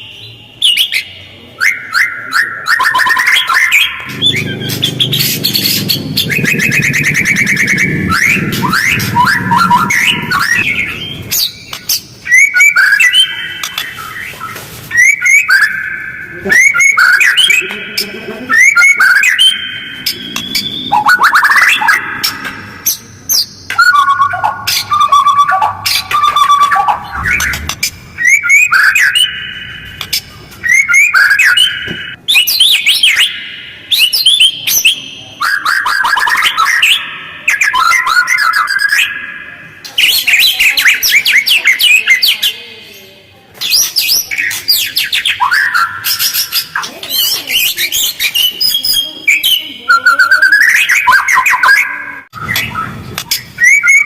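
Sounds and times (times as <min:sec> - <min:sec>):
bird singing whistled notes: 0:00.0 - 0:42.6, 0:43.6 - 0:54.0.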